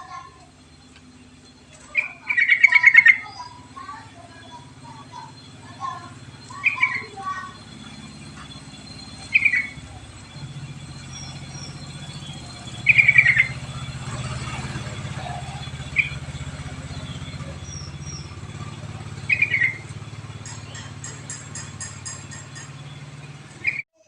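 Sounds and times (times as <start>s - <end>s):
bulbul calls: 0.0s - 23.8s
steady low hum: 0.0s - 23.8s.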